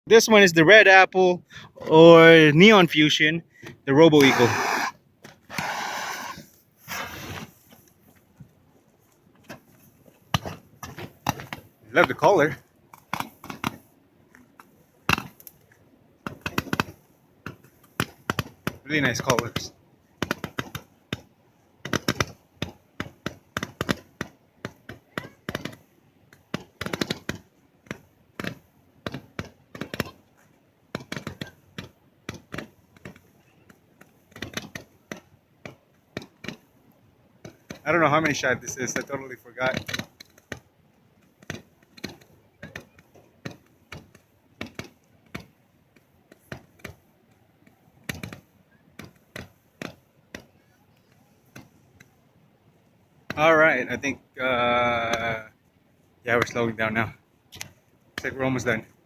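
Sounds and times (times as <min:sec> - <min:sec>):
firework crackling pops: 0:04.2 - 0:07.6.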